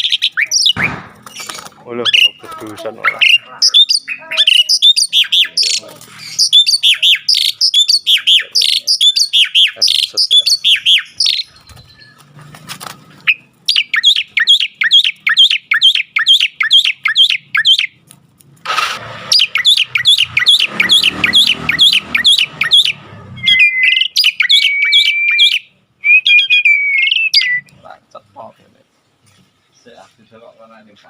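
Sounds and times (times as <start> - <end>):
starling singing: 0.0 - 18.0, 19.2 - 27.8
short rough noise: 18.6 - 19.6.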